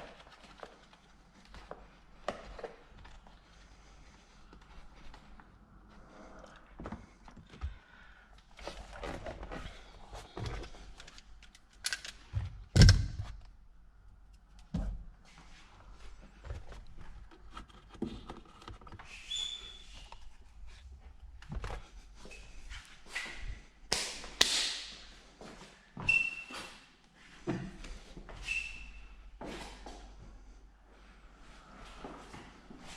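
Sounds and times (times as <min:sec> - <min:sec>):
short squeaks: 0:28.4 - 0:29.2.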